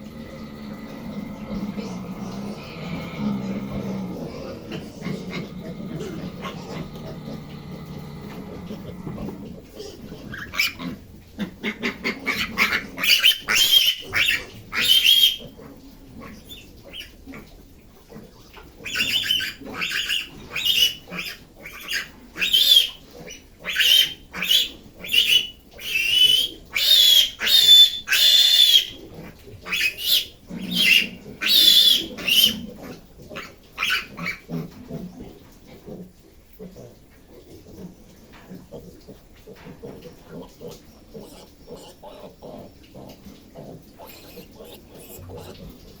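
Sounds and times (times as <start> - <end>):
piglet squealing: 11.6 - 15.5, 18.9 - 29.0, 29.7 - 32.7, 33.8 - 34.5, 41.1 - 43.2, 44.0 - 46.0.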